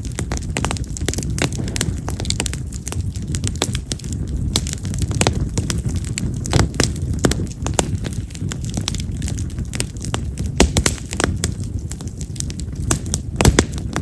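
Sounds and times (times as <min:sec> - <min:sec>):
low rumble of flame: 0:00.0 - 0:14.0
wood fire crackling and popping: 0:00.0 - 0:14.0.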